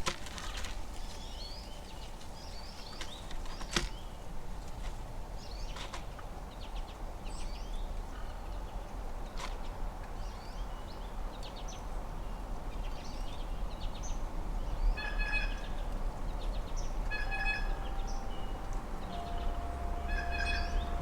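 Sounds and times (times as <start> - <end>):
songbirds chirping: 0.4 - 21.0
low outdoor rumble: 14.2 - 21.0
buzzy bird call: 17.1 - 21.0.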